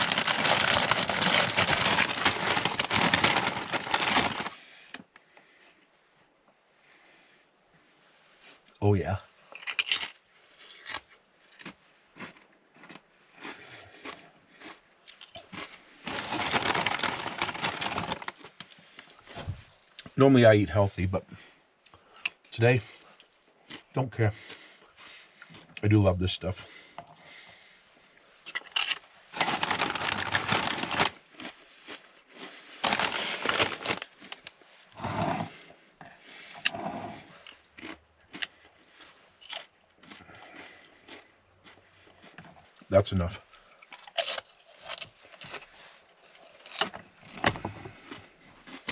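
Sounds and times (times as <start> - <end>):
tortilla chips crunching: 0.0 - 5.1, 9.5 - 19.2, 28.4 - 34.9, 37.3 - 42.9, 43.5 - 48.9.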